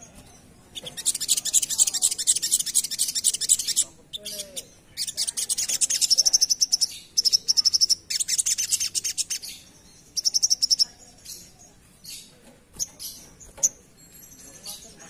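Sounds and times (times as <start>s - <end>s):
bird calls: 0.0s - 14.0s
bird trilling: 0.7s - 11.6s.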